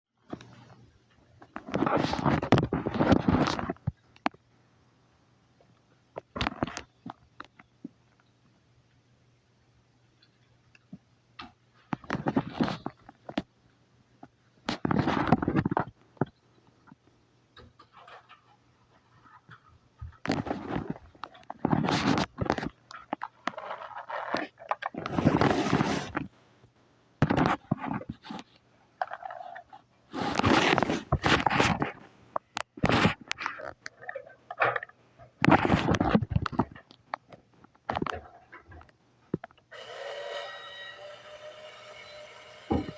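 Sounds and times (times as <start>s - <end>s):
toy truck scraping and crunching: 1.5s - 3.9s, 17.8s - 26.4s, 27.2s - 36.8s, 39.8s - 42.9s.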